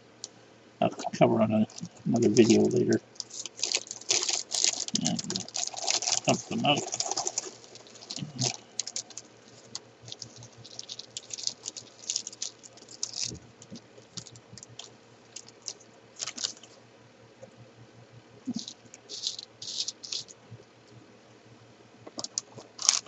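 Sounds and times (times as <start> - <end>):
puzzle pieces clicking and pattering: 2.2 - 9.2, 18.5 - 20.3.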